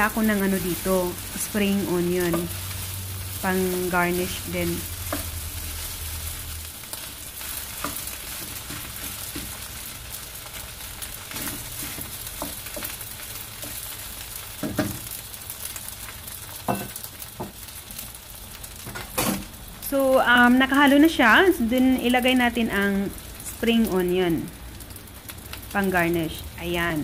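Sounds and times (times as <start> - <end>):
rice sizzling in a wok: 0.0 - 27.0
spatula scraping and tapping pan: 5.0 - 5.4, 7.8 - 9.7, 11.3 - 13.0.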